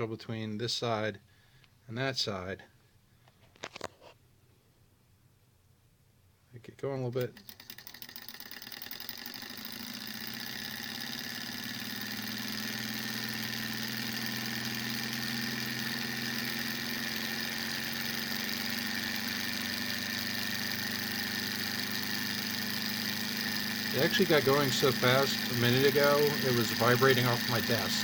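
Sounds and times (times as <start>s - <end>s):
small engine mechanical whir: 7.2s - 28.0s.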